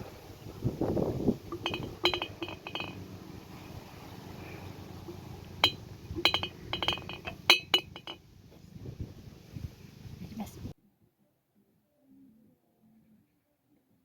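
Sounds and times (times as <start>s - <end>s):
glass jars clinking: 1.5s - 3.1s, 5.5s - 8.2s.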